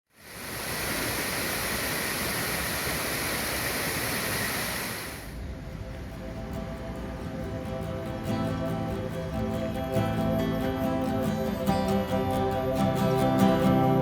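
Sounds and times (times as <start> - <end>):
flowing river water: 0.1 - 5.4
soft music with steady tones: 5.4 - 14.0.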